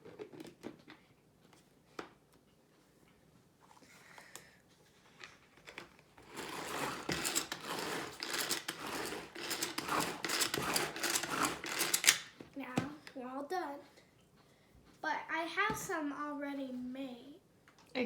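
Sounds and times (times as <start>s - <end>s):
pull-cord chopper rasping zip: 6.3s - 12.2s.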